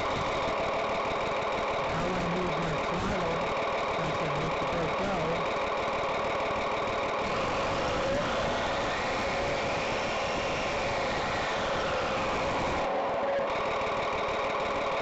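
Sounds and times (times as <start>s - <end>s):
simulated engine sound: 0.0s - 15.0s.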